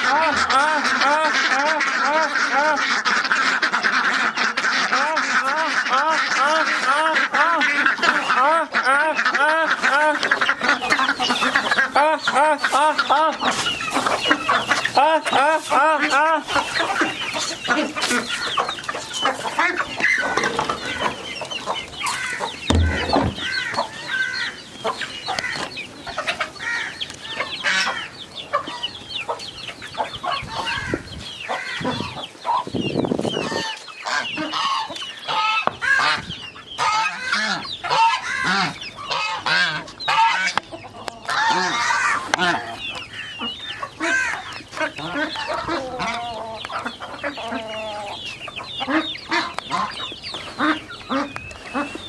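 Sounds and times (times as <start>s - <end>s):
chickens clucking: 0.0s - 52.0s
low thump: 22.7s - 23.6s.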